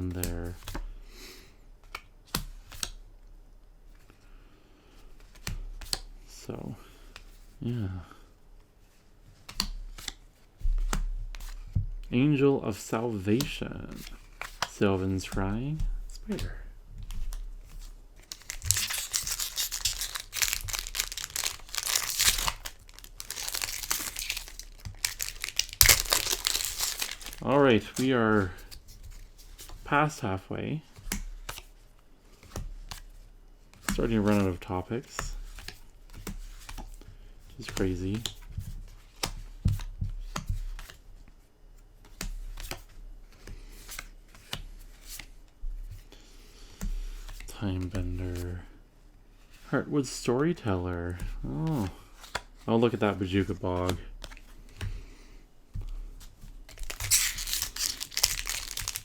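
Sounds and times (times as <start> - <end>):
plastic wrapper tearing and crinkling: 18.2 - 28.0, 56.7 - 59.0.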